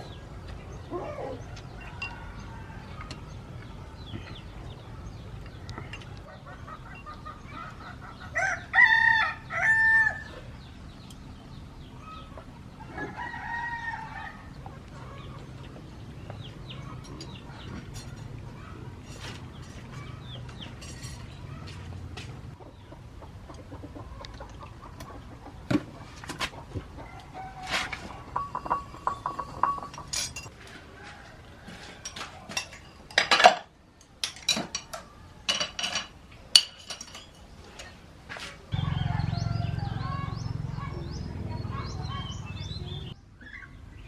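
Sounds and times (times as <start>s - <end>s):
rooster crowing: 8.4s - 10.4s, 38.8s - 40.4s.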